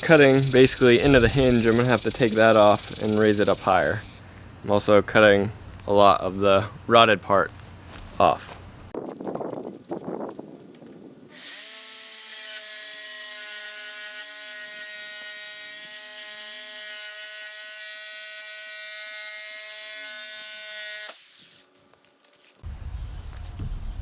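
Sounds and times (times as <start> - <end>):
power tool cutting wood: 0.0 - 4.2, 11.3 - 21.7.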